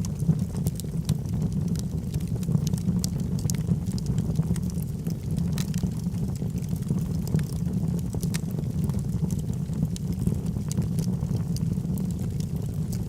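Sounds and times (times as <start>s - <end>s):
logs burning in a fireplace: 0.0s - 13.0s.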